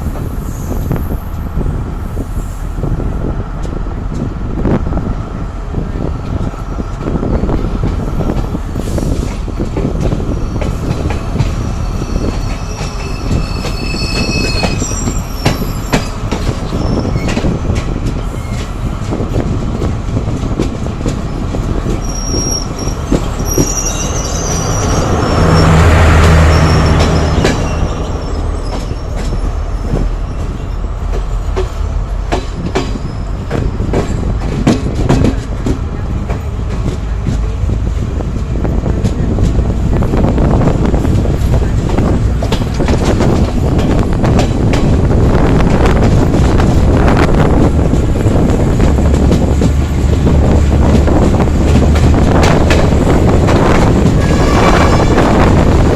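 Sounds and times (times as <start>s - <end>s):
train rumbling on rails: 0.0s - 55.9s
high-pitched wheel squeal: 11.6s - 17.4s, 22.0s - 30.4s, 54.2s - 55.5s.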